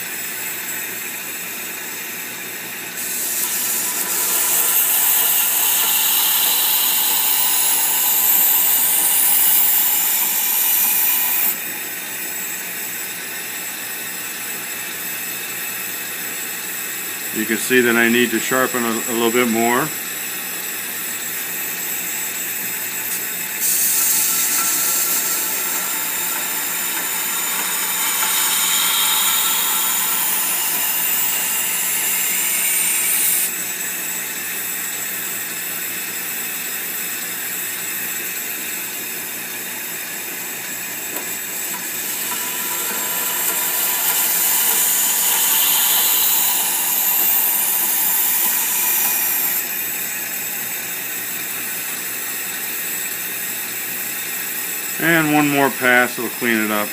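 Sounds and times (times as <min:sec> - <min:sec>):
knife grinder running: 0:00.0 - 0:56.9
high-pitched grinding hiss: 0:03.0 - 0:11.6, 0:17.2 - 0:33.8, 0:39.9 - 0:56.9.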